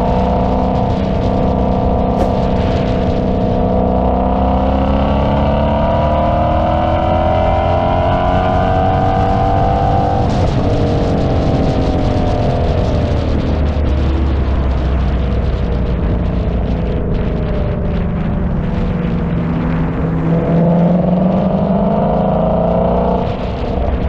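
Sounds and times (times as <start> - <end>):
car engine pulling under load: 2.1 - 3.8.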